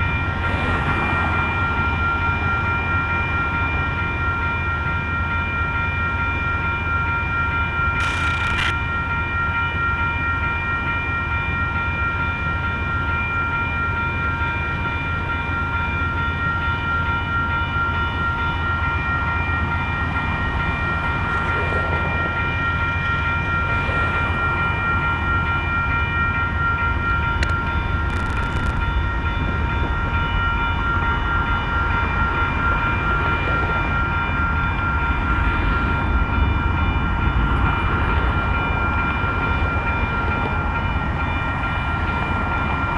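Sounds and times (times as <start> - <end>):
diesel locomotive idling: 7.5 - 9.7
short metallic clicks: 8.0 - 8.8
high-pitched whine: 8.0 - 8.9.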